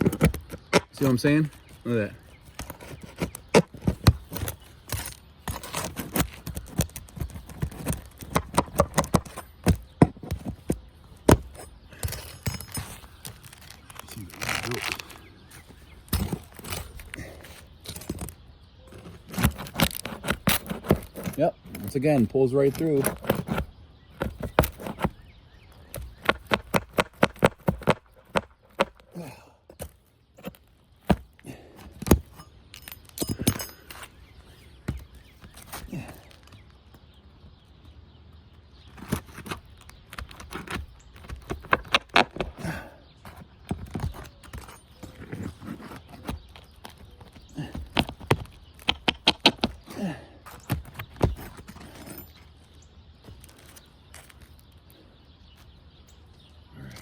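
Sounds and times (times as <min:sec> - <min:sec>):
tool scraping shingles: 0:00.0 - 0:36.7, 0:38.8 - 0:54.6
roofing tool clicking and knocking: 0:02.5 - 0:15.1, 0:43.2 - 0:49.9
metal tools knocking on roof shingles: 0:02.6 - 0:13.7, 0:16.0 - 0:21.4, 0:29.7 - 0:34.1.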